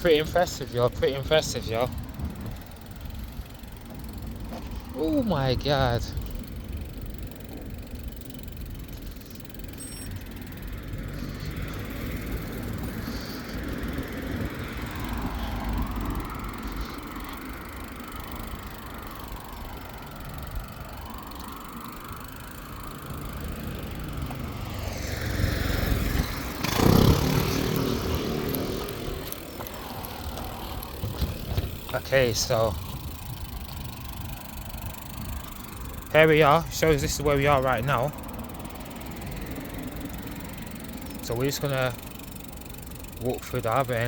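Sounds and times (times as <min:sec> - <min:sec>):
road traffic rumble: 0:00.0 - 0:44.0
vehicle passing close: 0:10.2 - 0:44.0.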